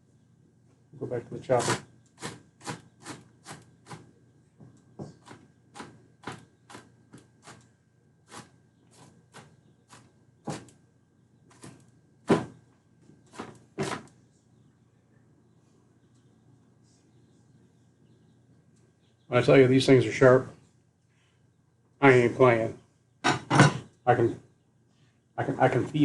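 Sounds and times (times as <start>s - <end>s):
knife chopping on cutting board: 1.6s - 4.0s, 9.4s - 10.7s, 11.5s - 12.5s.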